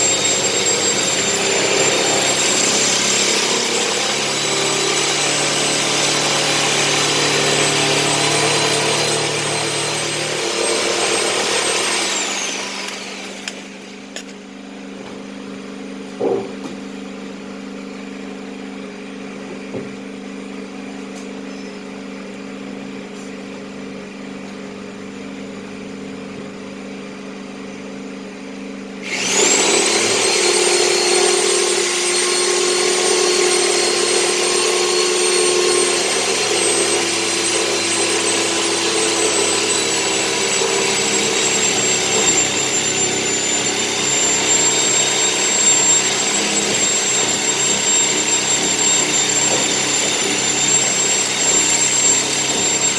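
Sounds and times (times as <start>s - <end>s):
power tool motor whining: 0.0s - 14.4s, 29.0s - 52.9s
single knock: 16.2s - 16.8s.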